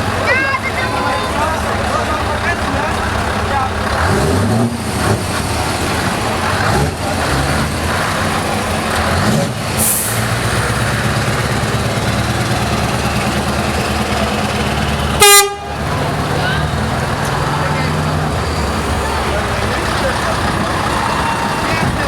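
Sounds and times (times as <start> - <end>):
truck diesel engines pulling away: 0.0 - 22.0
air brake hiss: 9.8 - 10.4
air horn blast: 15.2 - 15.7.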